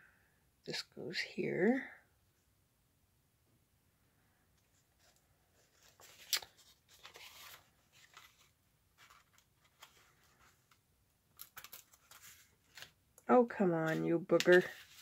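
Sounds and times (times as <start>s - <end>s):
paper rustling and scraping: 5.0s - 10.8s, 11.4s - 13.0s, 13.8s - 15.0s.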